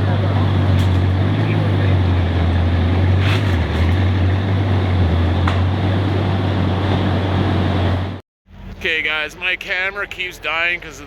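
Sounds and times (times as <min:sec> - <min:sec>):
car engine running: 0:00.0 - 0:08.2.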